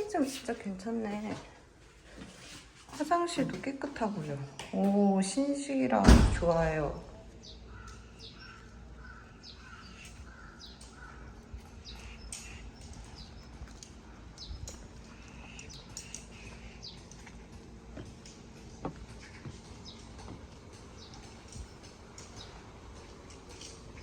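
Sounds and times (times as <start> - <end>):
birds chirping and calling: 7.4 - 17.5, 18.2 - 24.0.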